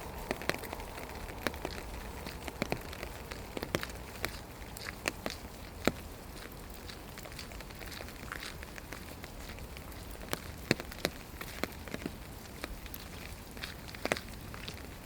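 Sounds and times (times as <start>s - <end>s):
rain hissing: 0.0s - 6.2s.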